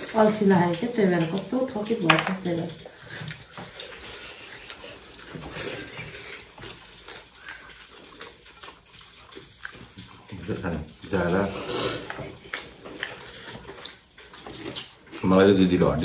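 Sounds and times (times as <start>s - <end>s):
fingers squelching food on plates: 0.0s - 16.0s
wet chewing sounds: 0.0s - 16.0s.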